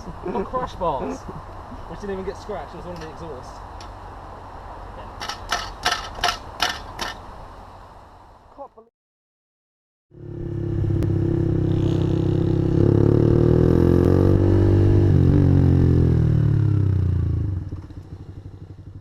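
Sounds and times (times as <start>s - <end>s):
motorcycle engine revving: 10.1s - 19.0s.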